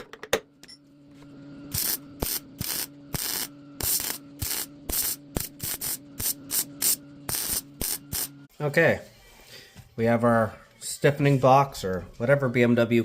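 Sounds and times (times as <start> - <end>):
steady low hum: 0.4 - 13.0
crackling hiss of spot welds: 1.7 - 8.3.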